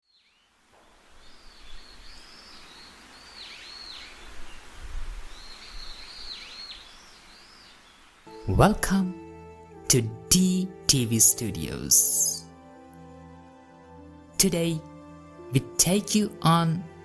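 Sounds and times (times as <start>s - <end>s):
steady background hiss: 0.1s - 13.1s.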